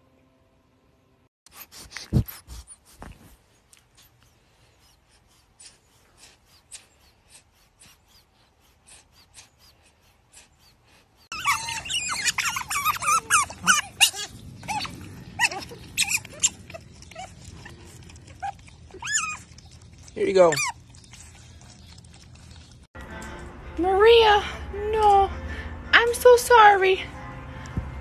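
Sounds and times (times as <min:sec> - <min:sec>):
animal whining and yelping: 0:03.9 - 0:22.9.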